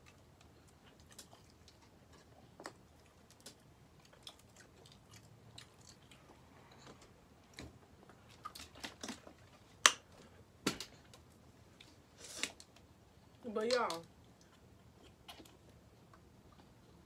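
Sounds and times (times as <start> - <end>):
person chewing: 0.0 - 10.0.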